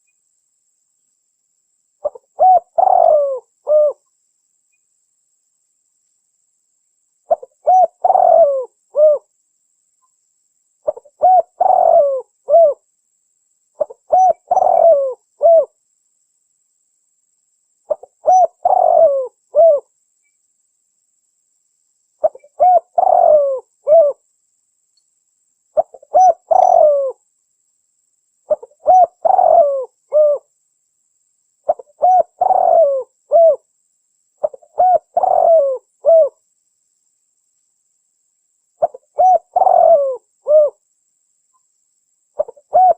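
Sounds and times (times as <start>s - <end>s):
dove cooing: 2.0s - 4.0s, 7.3s - 9.3s, 10.8s - 12.8s, 13.8s - 15.7s, 17.9s - 19.9s, 22.2s - 24.2s, 25.8s - 27.2s, 28.5s - 30.5s, 31.7s - 33.6s, 34.4s - 36.4s, 38.8s - 40.8s, 42.4s - 42.9s.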